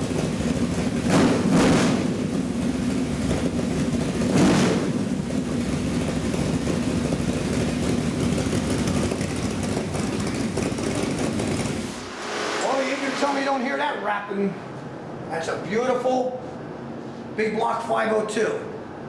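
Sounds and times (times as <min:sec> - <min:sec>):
car engine revving: 0:00.0 - 0:14.1.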